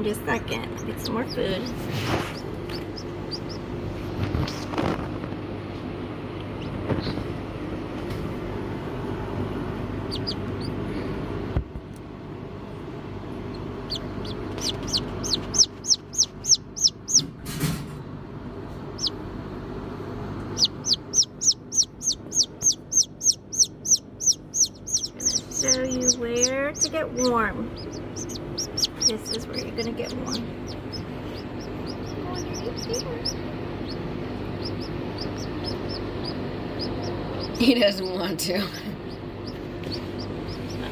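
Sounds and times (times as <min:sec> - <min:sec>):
low steady rumble: 0:00.0 - 0:40.9
chick peeping loudly: 0:00.8 - 0:03.8, 0:10.0 - 0:10.8, 0:13.5 - 0:17.3, 0:18.9 - 0:19.2, 0:20.5 - 0:37.7, 0:39.0 - 0:40.9.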